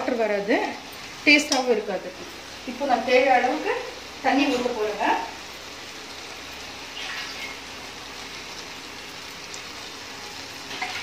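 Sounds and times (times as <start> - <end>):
chicken sizzling in a pressure cooker: 0.0 - 11.0
water pouring into pan: 6.9 - 9.7.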